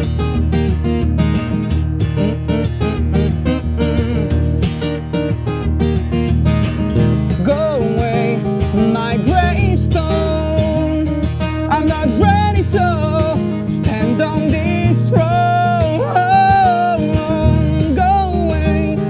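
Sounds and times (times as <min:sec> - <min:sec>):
acoustic guitar strumming: 0:00.0 - 0:19.0
person singing: 0:07.3 - 0:19.0.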